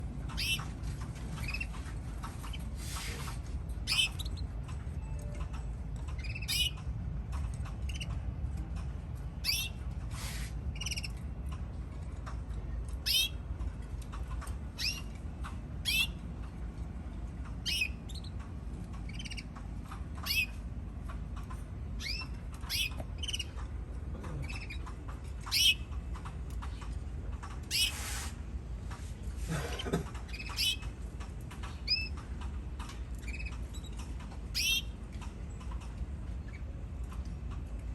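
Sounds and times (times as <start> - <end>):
steady low hum: 0.0 - 37.9
canaries chirping: 0.3 - 6.9, 7.6 - 8.2, 9.4 - 9.9, 10.7 - 11.2, 13.0 - 13.4, 14.7 - 15.2, 15.8 - 16.2, 17.6 - 20.6, 21.4 - 23.7, 24.3 - 26.7, 27.7 - 28.2, 29.7 - 30.9, 31.8 - 32.2, 33.2 - 34.9.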